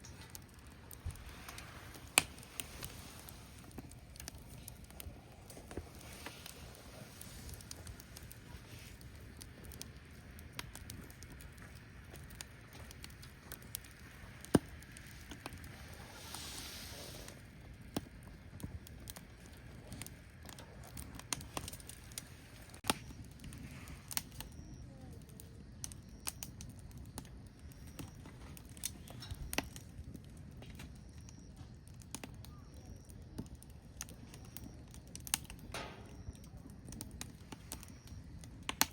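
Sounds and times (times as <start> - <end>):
logs crackling and popping: 0.0 - 38.9
low steady fire rumble: 0.0 - 38.9
brief hiss: 15.9 - 17.4.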